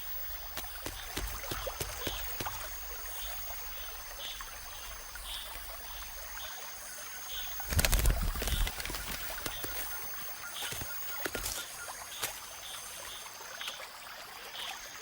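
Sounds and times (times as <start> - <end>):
bird wings fluttering: 0.0 - 3.8, 7.4 - 12.6
high insect-like tone: 0.0 - 13.5.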